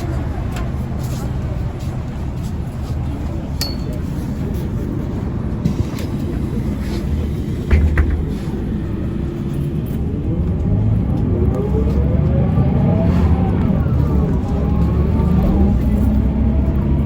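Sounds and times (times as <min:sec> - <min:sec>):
bus engine rumble: 0:00.0 - 0:17.0
short knocks: 0:07.7 - 0:08.7.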